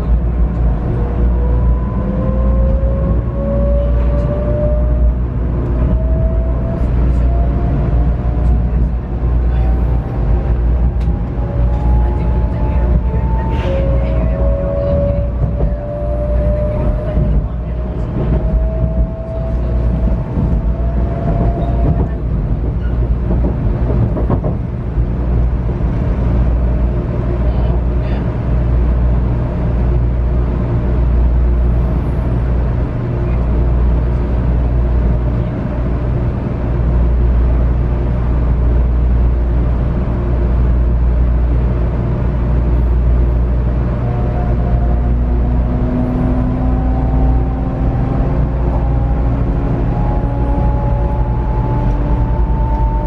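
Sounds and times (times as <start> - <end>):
train running rumble: 0.0 - 53.0.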